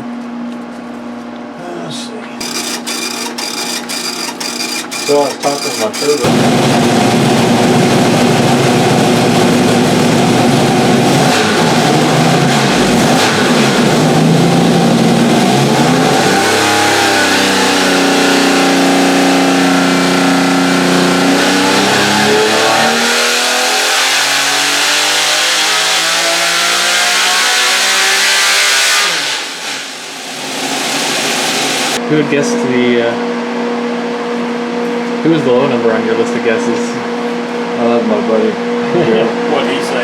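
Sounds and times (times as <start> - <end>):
engine revving on a dyno: 2.4 - 32.0.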